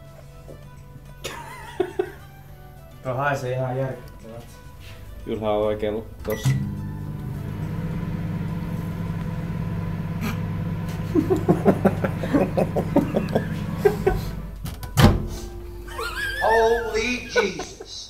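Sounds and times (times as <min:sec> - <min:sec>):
microwave oven humming: 0:05.9 - 0:16.6
loud clunk: 0:13.6 - 0:15.5.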